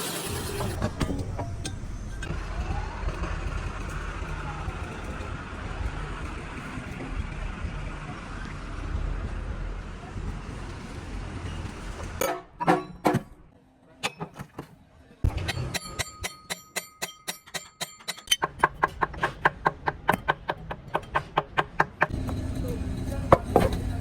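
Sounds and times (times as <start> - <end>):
traffic rumble: 0.8 - 12.2, 18.8 - 24.0.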